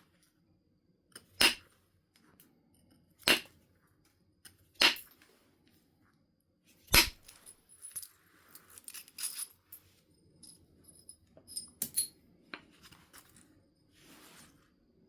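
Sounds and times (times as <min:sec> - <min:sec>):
sharp strike on flint: 0:06.9 - 0:07.3.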